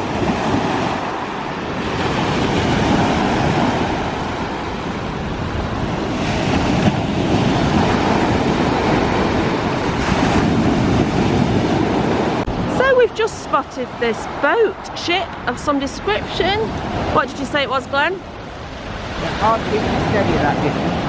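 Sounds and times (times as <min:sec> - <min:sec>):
waves breaking on pebble beach: 0:00.0 - 0:13.0
wind on microphone: 0:00.0 - 0:21.0.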